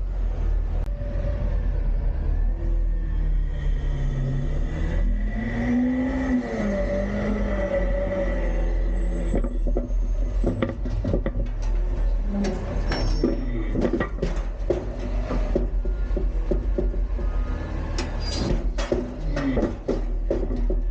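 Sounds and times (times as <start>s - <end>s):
truck engine and hydraulics: 0.0s - 20.9s
bin knocks bangs and clatter: 12.9s - 17.5s, 18.4s - 20.9s.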